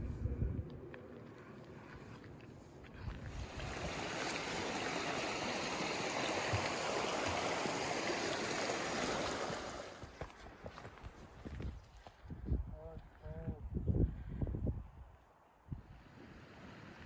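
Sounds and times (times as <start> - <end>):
mountain stream rushing: 3.3 - 10.5.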